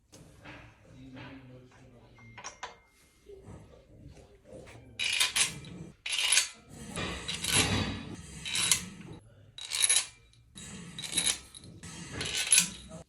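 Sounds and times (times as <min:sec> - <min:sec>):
metal parts and tools clinking: 0:02.2 - 0:02.9, 0:05.0 - 0:13.0.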